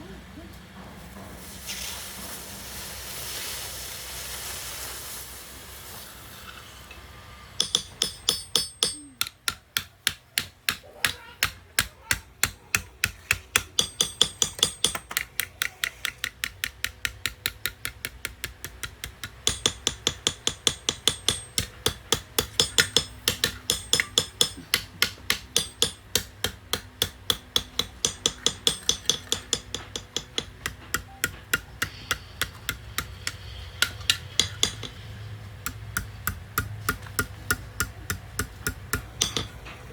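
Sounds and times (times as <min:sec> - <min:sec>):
hiss: 0:01.1 - 0:06.9
hammer striking metal on anvil: 0:07.6 - 0:16.2, 0:17.0 - 0:39.8.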